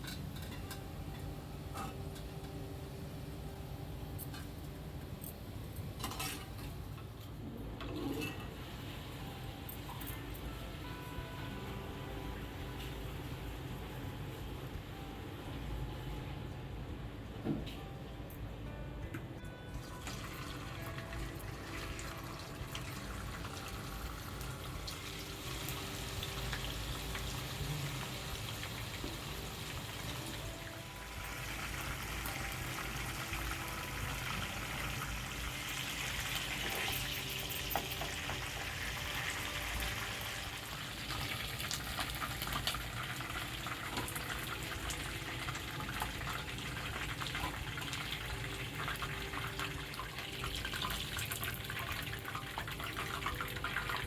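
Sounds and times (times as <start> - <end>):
food sizzling in hot oil: 19.9 - 54.0.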